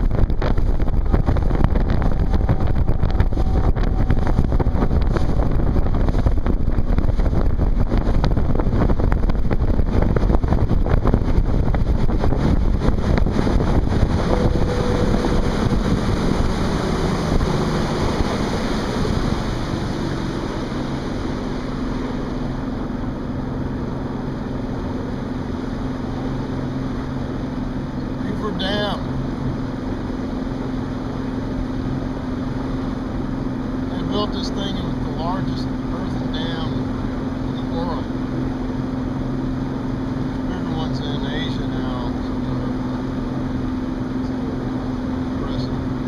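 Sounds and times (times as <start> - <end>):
wind buffeting microphone: 0.0 - 33.9
motorboat engine: 0.0 - 46.0
water rushing past hull: 0.0 - 46.0.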